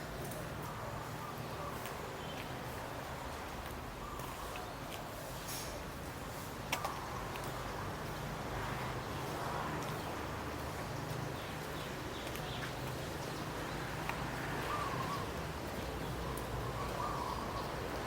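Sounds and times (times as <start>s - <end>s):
faint bird calls: 14.6s - 15.4s, 16.2s - 17.8s.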